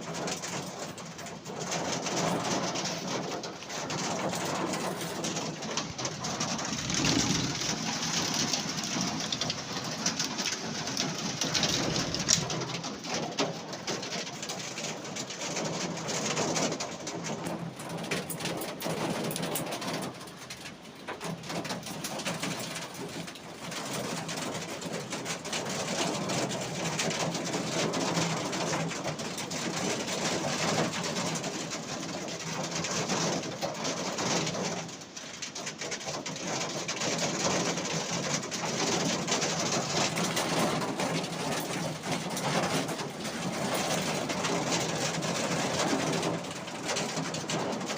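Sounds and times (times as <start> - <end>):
heavy rain pouring: 0.0 - 47.9
pigeon cooing: 5.8 - 8.8, 11.5 - 12.5.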